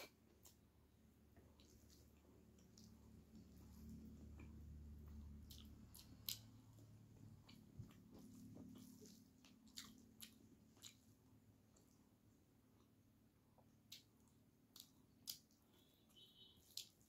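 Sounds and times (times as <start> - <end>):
soft chewing: 0.0 - 17.0
wet mouth clicks and smacks: 5.2 - 6.6.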